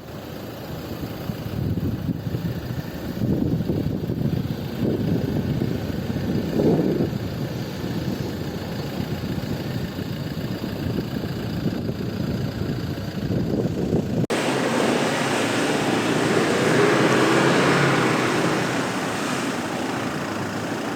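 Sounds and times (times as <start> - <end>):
diesel engine rumbling: 0.0 - 20.9
hissy vehicle noise: 14.3 - 20.9.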